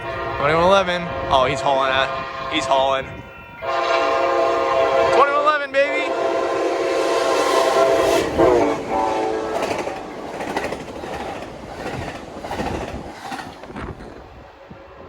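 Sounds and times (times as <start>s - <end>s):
train horn chord: 0.0s - 10.1s
train cars clattering over rail joints: 8.4s - 14.4s.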